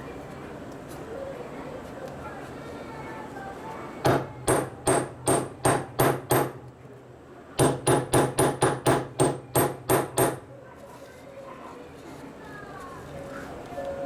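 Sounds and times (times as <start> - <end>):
hammer striking metal: 4.1 - 6.6, 7.6 - 10.4.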